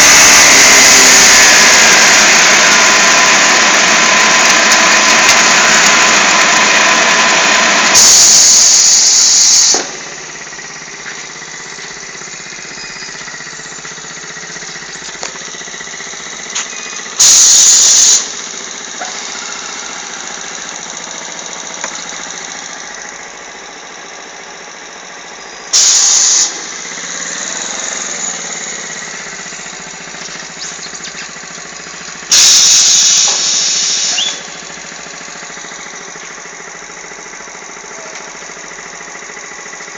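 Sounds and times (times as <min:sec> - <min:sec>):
motorcycle engine running: 0:00.0 - 0:39.9
loud hissing bursts: 0:07.7 - 0:10.5, 0:17.1 - 0:22.3, 0:25.7 - 0:36.0.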